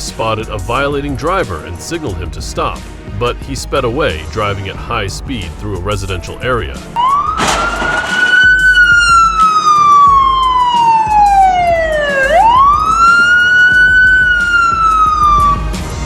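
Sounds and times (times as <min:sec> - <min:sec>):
police car siren wailing: 0:07.0 - 0:15.9.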